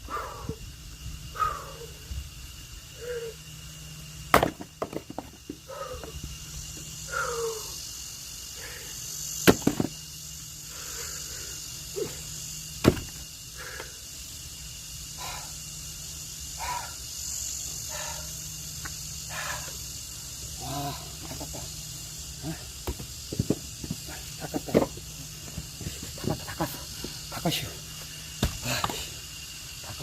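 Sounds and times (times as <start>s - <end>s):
axe chopping logs: 4.3s - 5.3s, 9.4s - 9.9s, 12.8s - 13.2s, 22.8s - 23.6s, 28.4s - 28.9s.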